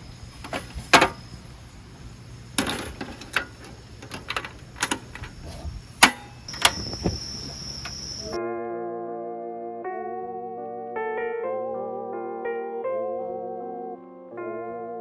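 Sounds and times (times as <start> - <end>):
thin steady high tone: 6.2 - 8.4.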